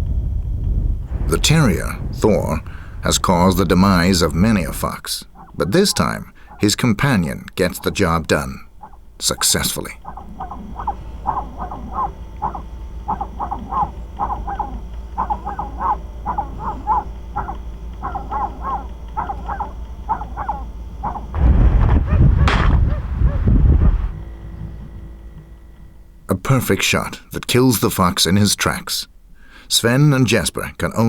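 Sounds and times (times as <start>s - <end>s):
loud rush of noise: 1.0s - 4.8s, 21.4s - 24.2s
terrier barking in quick yaps: 10.0s - 23.5s
shotgun shot: 21.4s - 24.2s.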